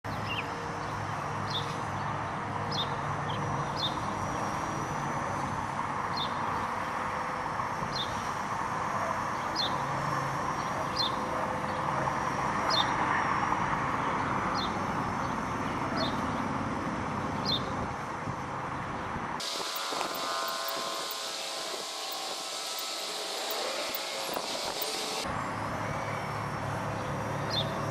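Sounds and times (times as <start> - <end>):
bird chirping: 0.1 - 1.8
wind noise: 17.7 - 22.6, 23.3 - 25.0.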